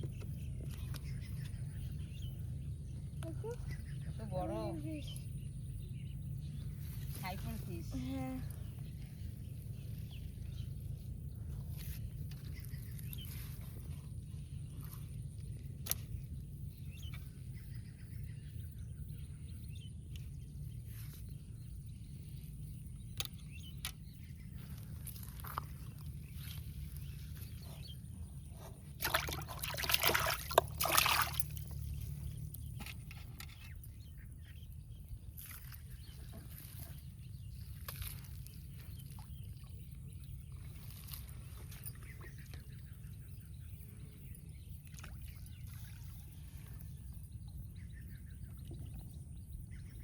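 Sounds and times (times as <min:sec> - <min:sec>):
low rumble: 0:00.0 - 0:50.0
water splashing and sloshing: 0:24.5 - 0:34.0, 0:34.9 - 0:42.6, 0:44.7 - 0:47.7.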